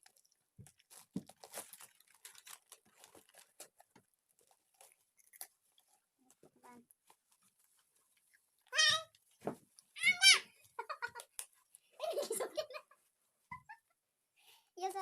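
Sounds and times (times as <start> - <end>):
packaging tearing and crinkling: 0.1 - 5.5.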